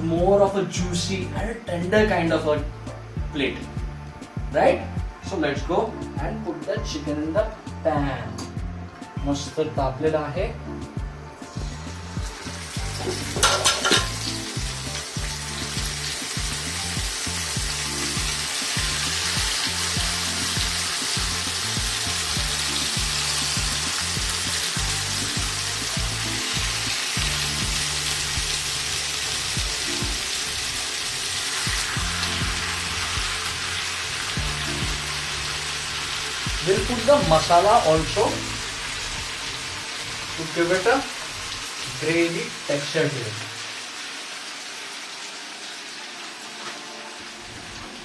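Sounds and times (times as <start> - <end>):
chicken sizzling in a pan: 11.5 - 48.0
pieces clattering into pan: 13.0 - 14.3.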